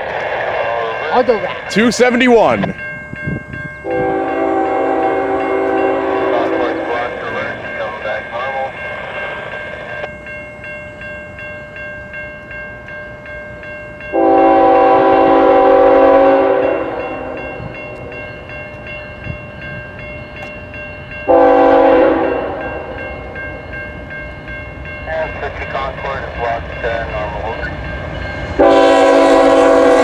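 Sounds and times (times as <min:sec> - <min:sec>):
level-crossing bell ringing: 0:00.8 - 0:29.0
locomotive horn chord: 0:03.8 - 0:07.4, 0:14.1 - 0:17.8, 0:21.3 - 0:23.0, 0:28.6 - 0:30.0.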